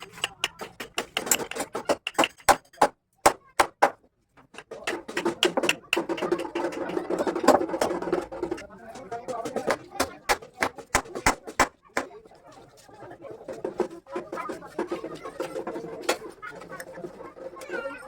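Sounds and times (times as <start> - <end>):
sharp knocks and clicks: 0.0 - 12.1.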